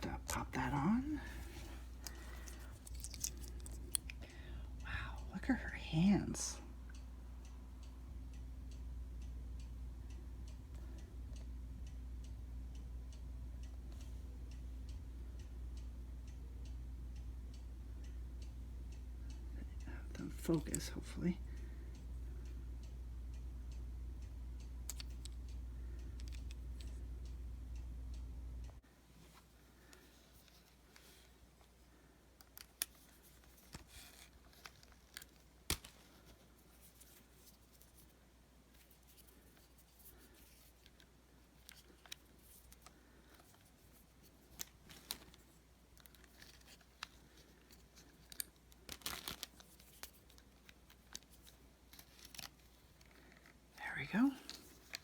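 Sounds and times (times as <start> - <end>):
soft rustle: 0.0 - 4.2, 28.8 - 55.0
low steady hum: 0.0 - 55.0.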